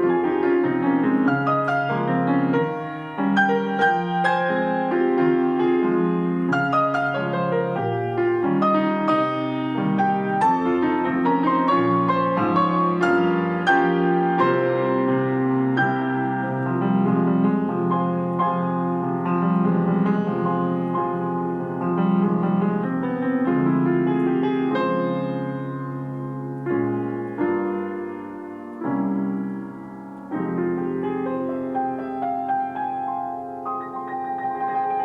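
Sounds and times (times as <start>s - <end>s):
piano duet: 0.0s - 35.0s.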